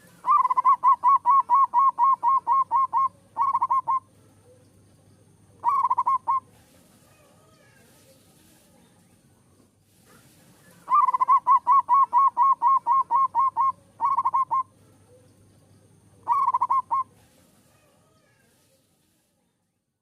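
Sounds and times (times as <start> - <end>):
dove singing short notes: 0.2 - 4.1, 5.6 - 6.5, 10.9 - 14.7, 16.2 - 17.1.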